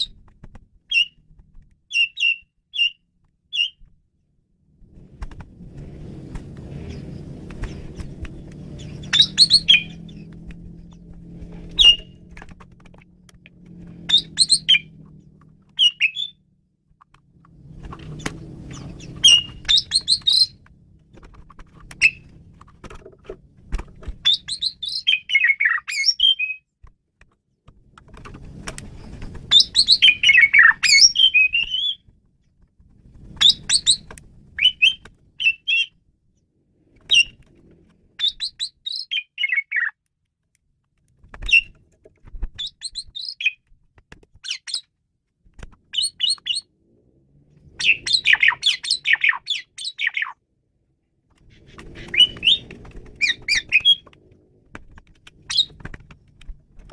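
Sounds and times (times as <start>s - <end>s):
starling singing: 8.7s - 10.3s, 11.7s - 12.3s, 14.0s - 15.0s, 15.7s - 16.4s, 18.6s - 20.6s, 21.9s - 22.4s, 24.2s - 26.6s, 29.5s - 32.0s, 33.4s - 35.9s, 38.2s - 39.9s, 47.7s - 50.4s, 51.9s - 54.1s, 55.4s - 55.8s.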